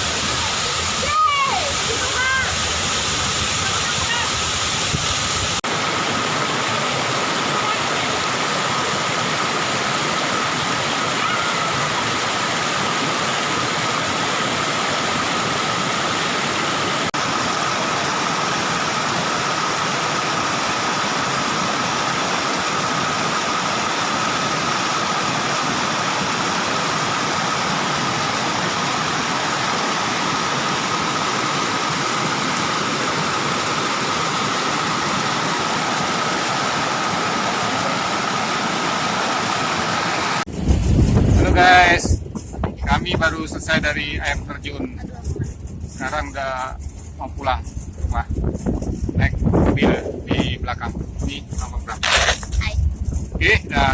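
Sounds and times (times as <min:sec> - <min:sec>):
waterfall rushing roar: 0:00.0 - 0:40.5.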